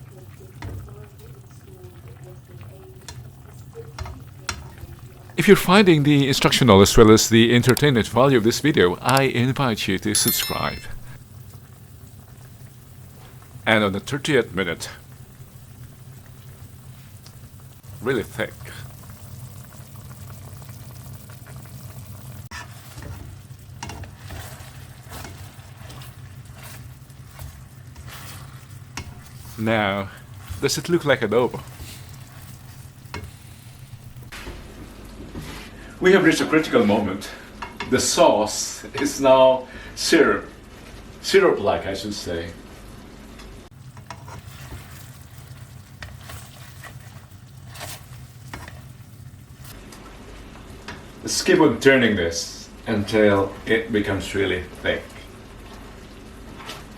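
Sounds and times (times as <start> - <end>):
sauce sizzling and bubbling in a pan: 0.0 - 9.0, 11.2 - 56.9
stirring strokes in a pan: 14.9 - 18.1, 20.9 - 35.9, 43.8 - 51.2, 52.8 - 56.9.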